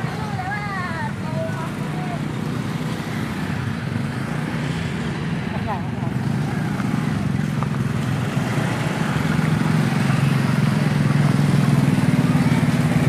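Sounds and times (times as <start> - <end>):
traffic engine drone: 0.0 - 13.0.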